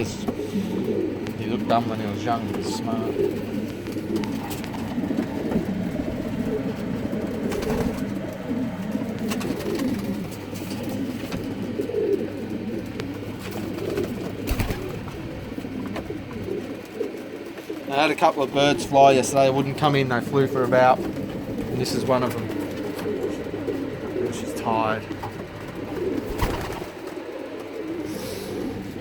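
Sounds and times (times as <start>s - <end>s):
pigeons cooing: 0.0s - 29.0s.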